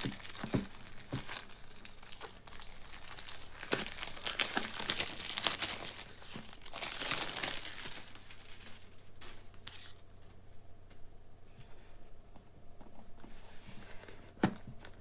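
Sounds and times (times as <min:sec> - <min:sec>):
cellophane wrap tearing and crinkling: 0:00.0 - 0:10.0.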